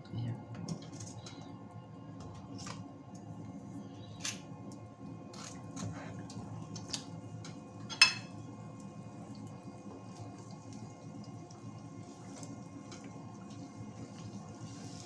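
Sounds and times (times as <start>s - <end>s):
food sizzling in oil: 7.8s - 15.0s
metal spoon clinking on pan: 7.9s - 8.3s.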